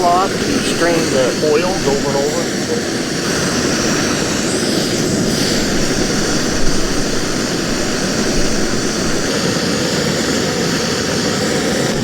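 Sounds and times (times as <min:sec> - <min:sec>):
loud rushing roar: 0:00.0 - 0:09.5.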